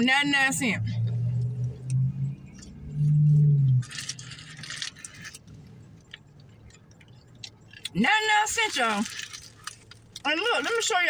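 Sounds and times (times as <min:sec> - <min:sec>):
food packaging rustling: 0:08.6 - 0:11.0.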